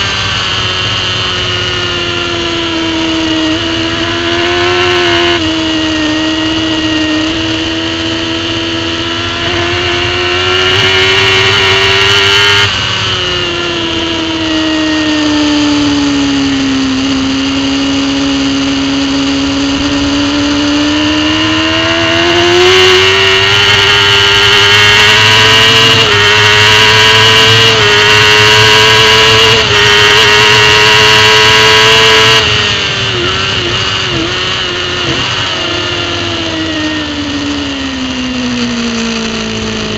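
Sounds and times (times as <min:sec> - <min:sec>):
racing motorcycle engine: 0:00.0 - 0:39.9.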